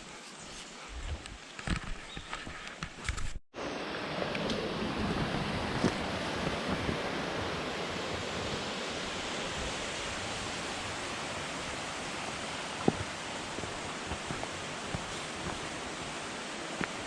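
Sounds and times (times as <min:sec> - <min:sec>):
rushing mountain stream: 0:03.6 - 0:17.0.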